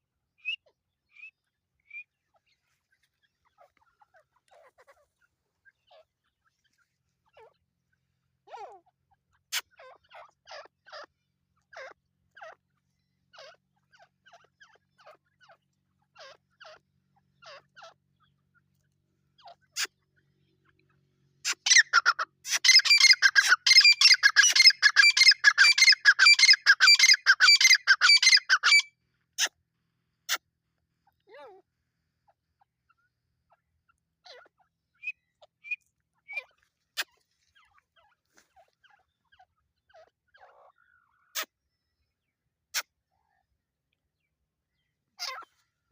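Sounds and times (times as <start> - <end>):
partridges calling: 21.4 - 29.5, 33.9 - 42.0.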